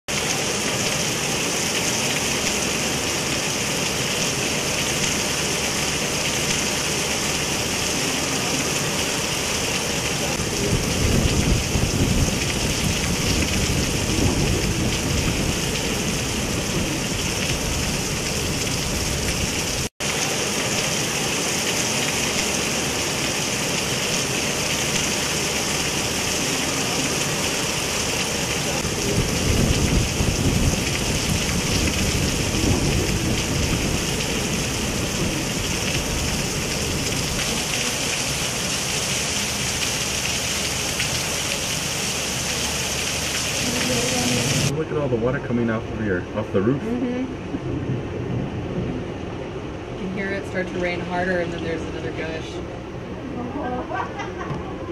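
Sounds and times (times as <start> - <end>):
heavy rain on pavement and cars: 0.1 - 54.9
deep rumble: 10.2 - 19.9, 28.6 - 38.0, 43.7 - 53.1.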